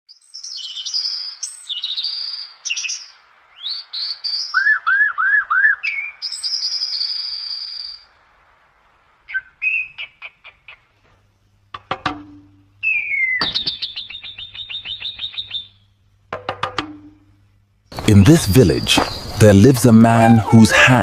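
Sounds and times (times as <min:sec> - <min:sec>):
birdsong chirps and whistles: 0:00.1 - 0:08.2, 0:09.2 - 0:11.0, 0:12.8 - 0:16.0, 0:18.2 - 0:20.6.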